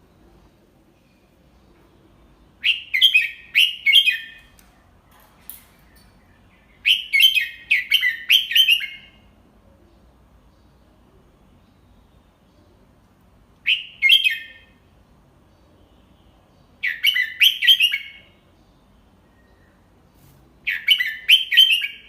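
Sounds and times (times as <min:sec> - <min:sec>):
bird singing bright notes: 0:01.0 - 0:10.8, 0:13.6 - 0:14.8, 0:15.5 - 0:22.0.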